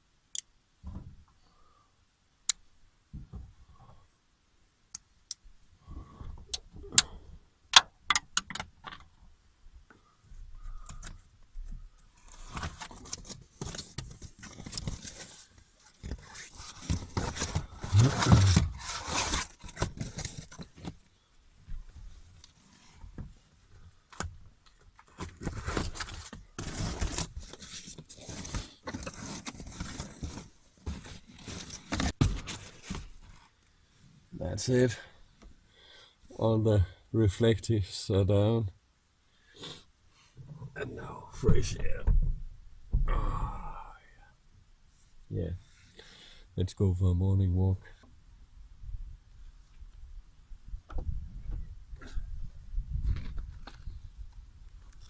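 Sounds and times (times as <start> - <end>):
reflective material crinkling: 12.1 - 23.7, 24.6 - 33.6.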